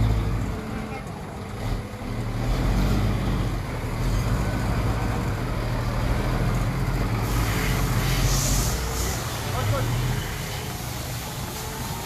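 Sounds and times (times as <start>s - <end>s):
heavy vehicle engine humming: 0.0s - 12.0s.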